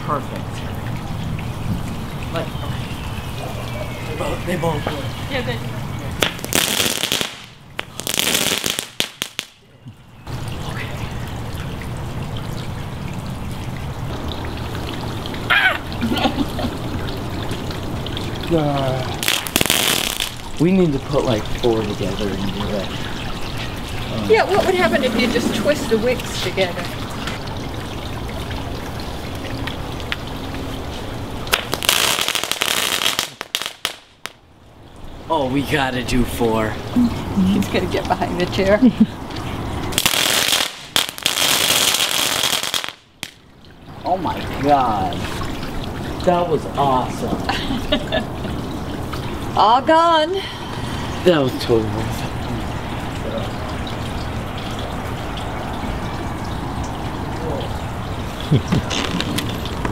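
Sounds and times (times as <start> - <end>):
fireworks hissing and crackling: 6.2 - 9.6, 19.2 - 20.6, 31.5 - 34.4, 39.9 - 43.4
fireworks sharp pops: 6.2 - 9.6, 19.2 - 20.6, 31.5 - 34.4, 40.0 - 43.4
fireworks hissing spray: 19.2 - 20.6.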